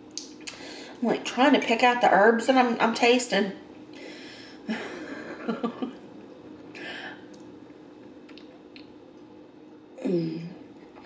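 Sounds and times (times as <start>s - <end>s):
soft voiced hums: 3.4s - 11.0s
woman chewing food: 6.0s - 9.3s
wet mouth clicks and smacks: 8.3s - 8.9s.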